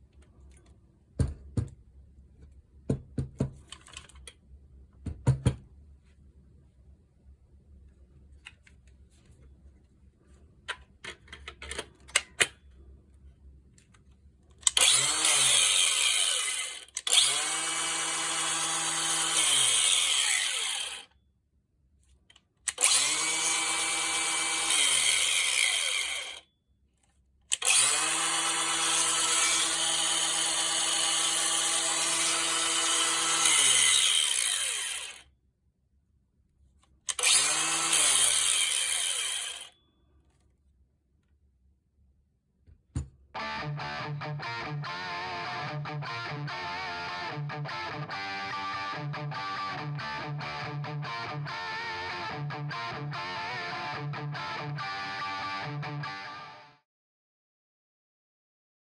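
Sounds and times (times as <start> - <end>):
disc grinder motor running: 14.8 - 21.0, 22.8 - 26.4, 27.6 - 35.2, 37.2 - 39.7.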